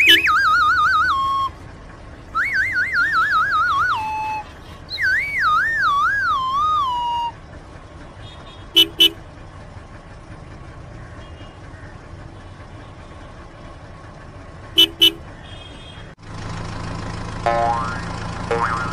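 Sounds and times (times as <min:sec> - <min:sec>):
horn beeps: 0:00.0 - 0:01.5, 0:08.5 - 0:09.2, 0:14.8 - 0:15.8.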